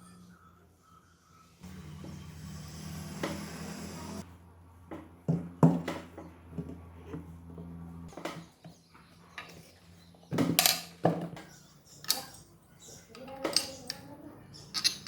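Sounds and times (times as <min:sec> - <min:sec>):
knocks and clinks of tools: 0:13.1 - 0:14.1, 0:14.7 - 0:15.0.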